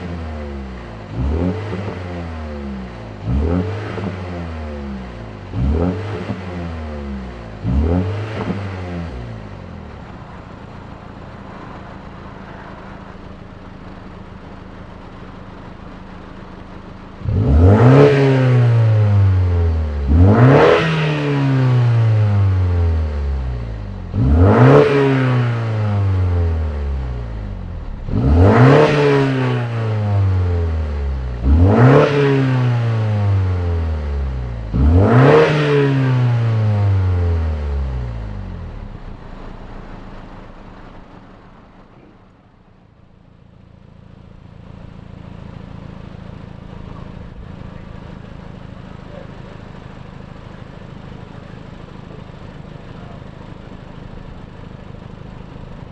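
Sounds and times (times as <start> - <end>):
car engine idling: 0.0 - 55.9
car engine revving: 0.0 - 55.9.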